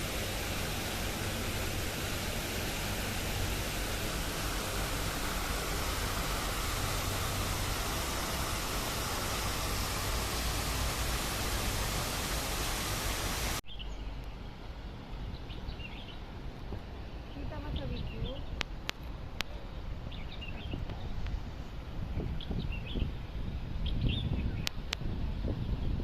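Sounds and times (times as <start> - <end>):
falling water rushing: 0.0 - 13.6.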